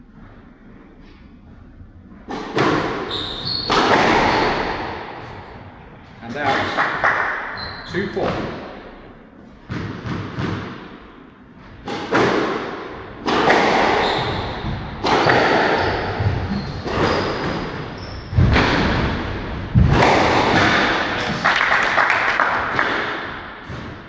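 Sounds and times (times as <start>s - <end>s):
squash ball cracking off rackets: 11.6s - 23.9s
ball thudding against walls: 11.6s - 24.0s.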